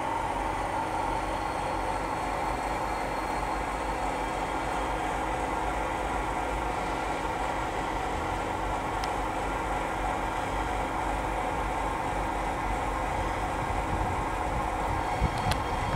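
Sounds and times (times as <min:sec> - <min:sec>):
train running hiss: 0:00.0 - 0:15.9
faint tick: 0:15.4 - 0:15.6.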